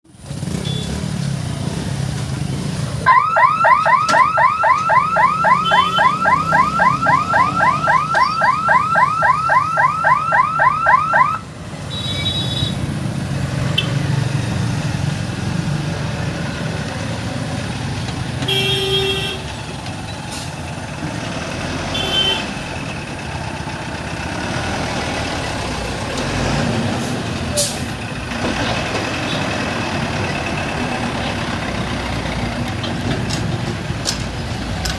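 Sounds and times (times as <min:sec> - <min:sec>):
idling road traffic rumble: 0:00.0 - 0:34.9
level crossing electronic siren: 0:03.1 - 0:11.5
vehicle horn toots: 0:05.6 - 0:06.2, 0:18.4 - 0:19.5, 0:21.9 - 0:22.6.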